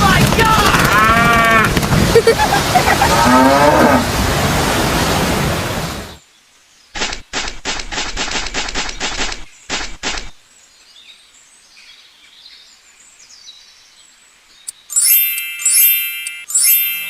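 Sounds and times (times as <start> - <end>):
cattle mooing: 0.8 - 1.8, 2.8 - 4.2.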